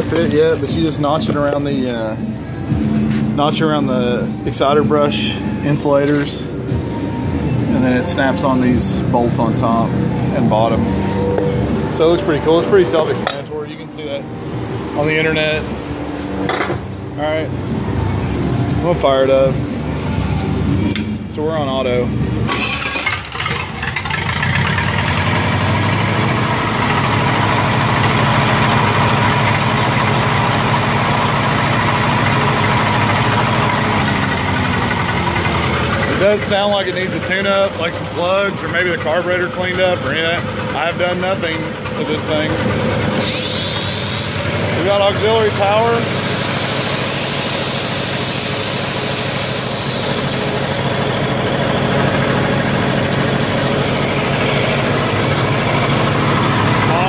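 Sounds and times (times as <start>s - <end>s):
welder gasoline engine running: 22.4s - 57.0s.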